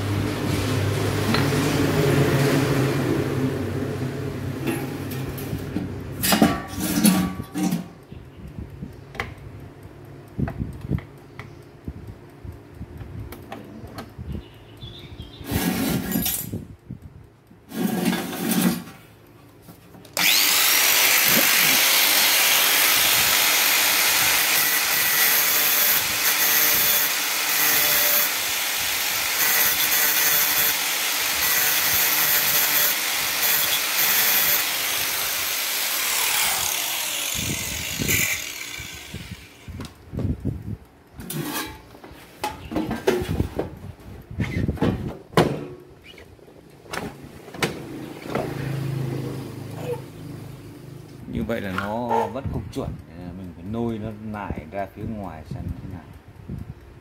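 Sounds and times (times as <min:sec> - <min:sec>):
electric grinder whining: 0:20.2 - 0:39.9.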